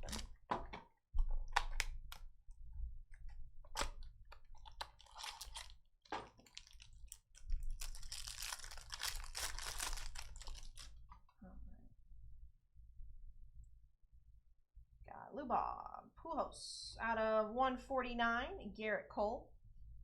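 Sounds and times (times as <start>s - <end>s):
plastic wrap crinkling and tearing: 0.0s - 0.4s, 3.7s - 11.2s.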